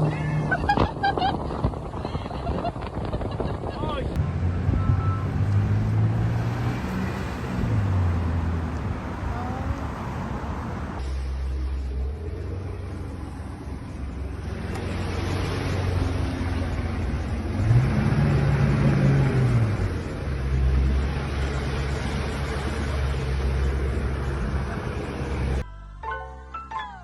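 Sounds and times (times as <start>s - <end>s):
wind or water noise: 0.0s - 25.7s
engine running and revving: 4.1s - 25.6s.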